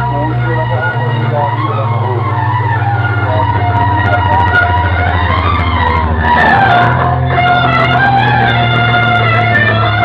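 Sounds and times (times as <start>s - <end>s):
loud dj music with heavy bass: 3.1s - 7.7s.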